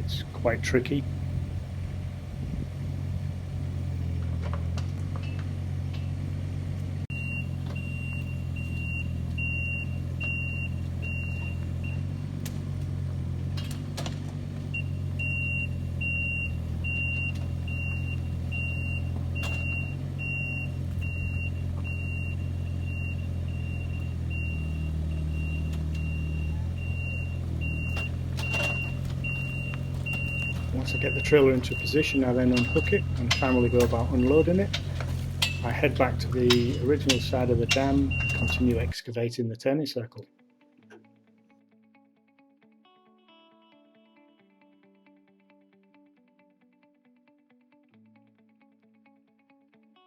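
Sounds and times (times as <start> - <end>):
diesel engine running: 0.0 - 39.0
travel alarm beeping: 7.1 - 12.2, 14.7 - 39.0.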